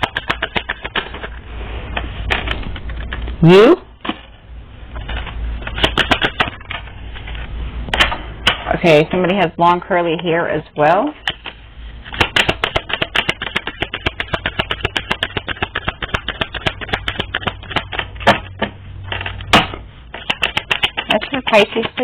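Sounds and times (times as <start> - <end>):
playing cards being shuffled: 11.3 - 18.4.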